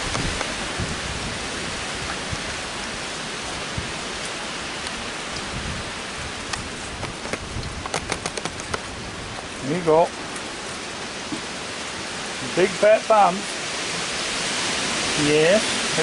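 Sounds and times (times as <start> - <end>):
heavy rain falling: 0.0 - 16.0
wind: 0.0 - 16.0
sharp ticks: 7.3 - 8.8.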